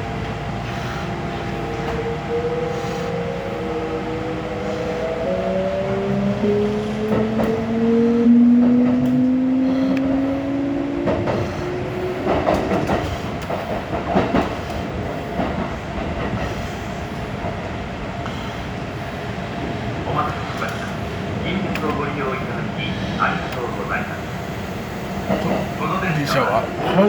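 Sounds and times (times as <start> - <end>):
train motors whining: 1.4 - 15.0
clacks over rail joints: 7.0 - 7.7, 8.4 - 10.2, 10.9 - 16.6.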